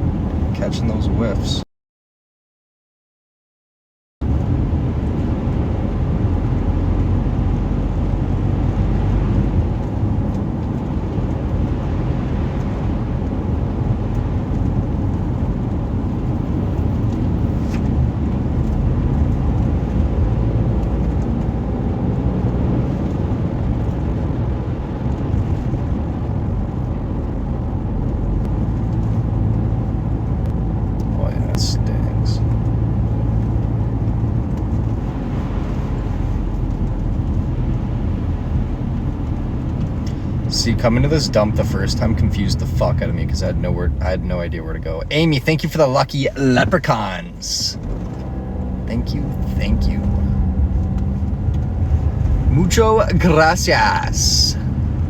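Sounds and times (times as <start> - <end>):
car engine: 0.0 - 1.6, 4.2 - 55.0
road noise: 0.0 - 1.6, 4.2 - 55.0.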